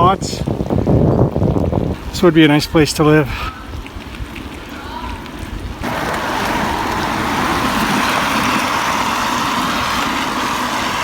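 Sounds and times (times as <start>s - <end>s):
vehicle and road noise: 5.7s - 11.0s.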